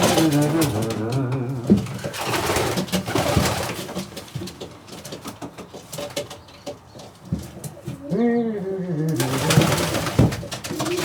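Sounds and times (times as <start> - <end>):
pigeons cooing: 0.0 - 3.8, 6.8 - 11.0.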